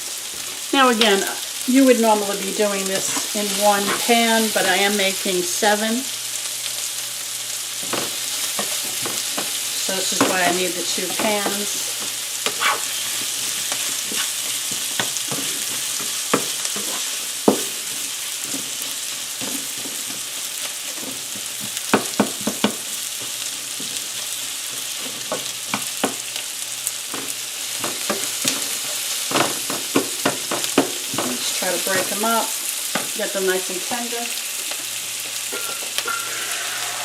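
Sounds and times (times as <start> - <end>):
onions sizzling in oil: 0.0 - 37.0
utensil scraping pan: 3.0 - 4.6, 10.1 - 14.4, 35.6 - 37.0.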